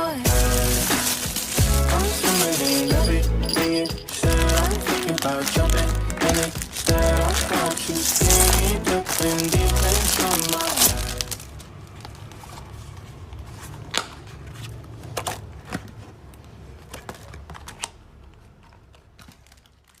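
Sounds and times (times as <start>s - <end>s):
packaging clicks and taps: 0.3s - 12.2s.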